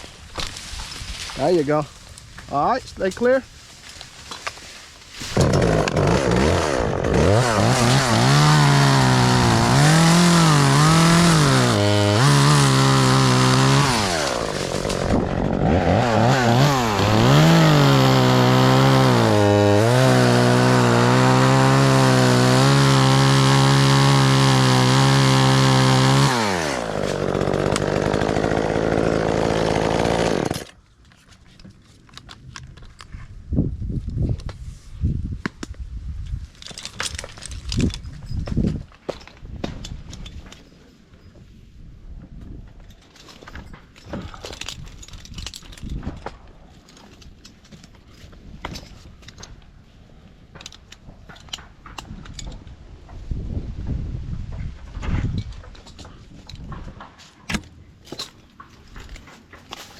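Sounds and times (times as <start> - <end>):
chainsaw revving and cutting: 5.3 - 30.8.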